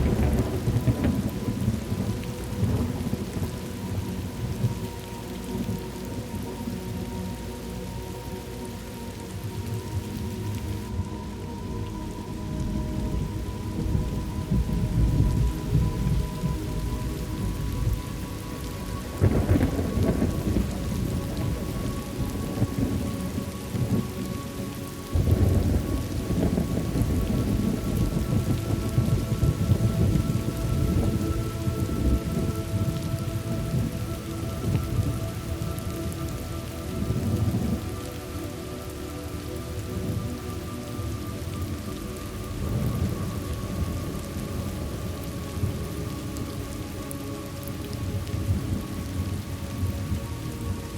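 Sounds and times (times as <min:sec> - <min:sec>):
loud thunderclaps: 0:00.0 - 0:03.5
rolling thunder: 0:00.0 - 0:05.8, 0:12.1 - 0:18.2, 0:19.1 - 0:24.3, 0:25.1 - 0:38.0
steady rain: 0:00.0 - 0:50.9.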